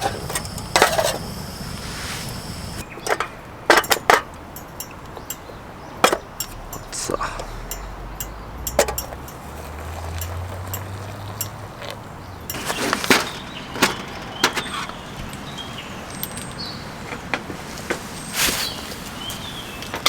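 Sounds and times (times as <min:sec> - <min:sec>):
camp cookware clicking and knocking: 0:00.0 - 0:07.1, 0:07.7 - 0:14.9.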